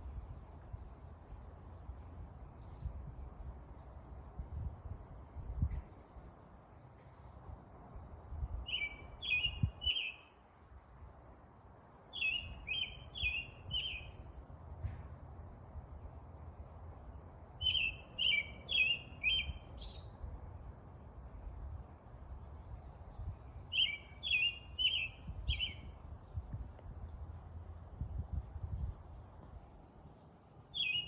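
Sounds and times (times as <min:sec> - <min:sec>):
birds chirping: 0:11.9 - 0:20.7, 0:21.7 - 0:27.7, 0:30.7 - 0:31.0.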